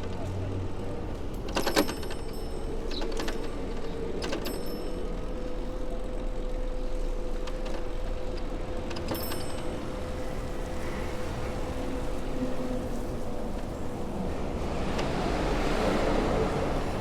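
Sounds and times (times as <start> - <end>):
bike clicks and rattles: 1.3 - 5.0
bicycle rolling on wet street: 9.7 - 17.0.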